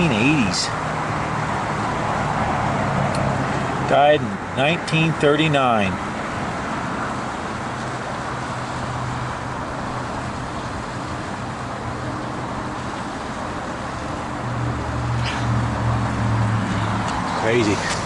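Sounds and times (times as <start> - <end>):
road traffic roar: 0.0 - 18.0
vehicle engine hum: 0.0 - 18.0.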